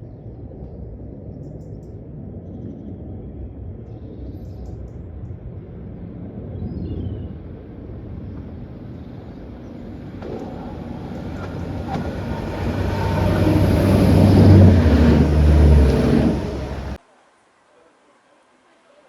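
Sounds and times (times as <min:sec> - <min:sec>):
diesel train approaching: 0:07.9 - 0:17.0.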